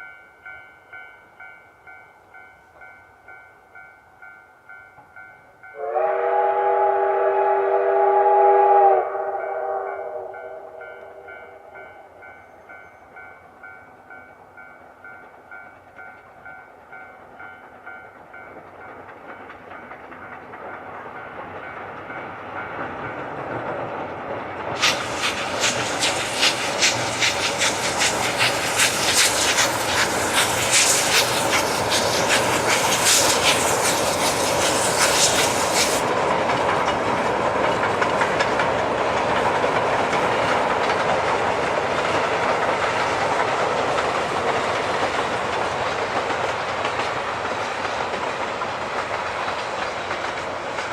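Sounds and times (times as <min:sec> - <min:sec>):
steam train passing: 0:00.0 - 0:50.9
train wheels clattering over track: 0:15.2 - 0:50.9.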